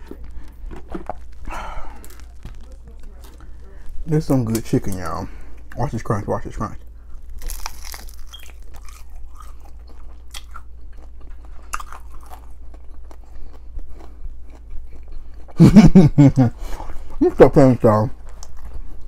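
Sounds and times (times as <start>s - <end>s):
crunching and chewing food: 0.0s - 19.0s
man talking: 4.0s - 6.8s, 17.2s - 18.2s.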